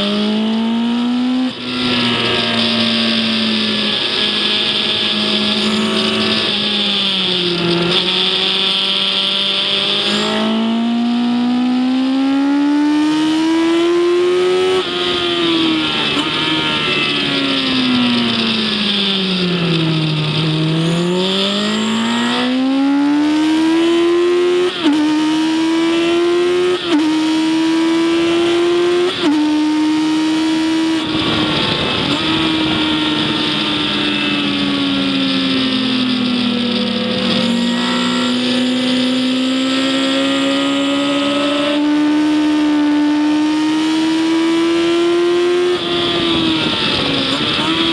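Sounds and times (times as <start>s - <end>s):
race engine revving and upshifting: 0.0s - 47.9s
wind rushing: 30.9s - 35.0s.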